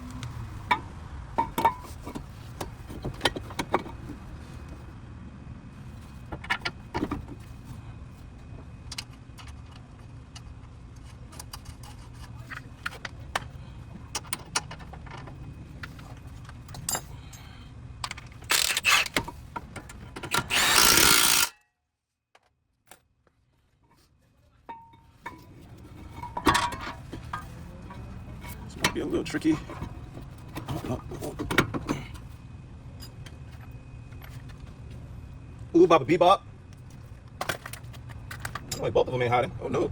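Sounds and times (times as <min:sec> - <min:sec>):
power tool burst: 0:18.5 - 0:19.2, 0:20.4 - 0:21.5
metal tools clinking: 0:20.3 - 0:21.6, 0:24.7 - 0:32.3
steady low hum: 0:23.6 - 0:39.9.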